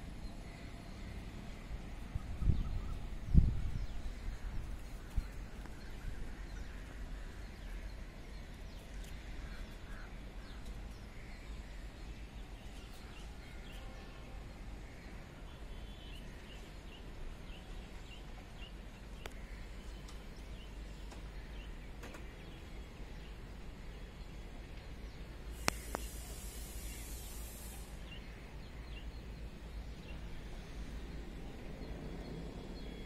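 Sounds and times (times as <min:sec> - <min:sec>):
steady low rumble: 0:00.0 - 0:12.6, 0:28.3 - 0:33.0.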